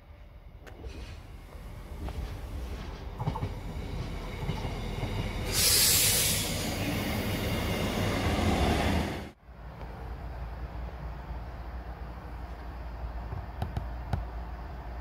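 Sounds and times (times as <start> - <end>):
train running on track: 0.0 - 15.0
loud hissing rush: 5.4 - 7.8.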